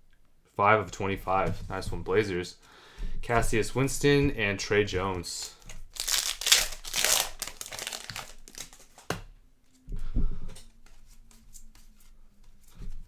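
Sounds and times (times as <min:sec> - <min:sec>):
plastic wrapping crinkling: 0:05.3 - 0:09.3.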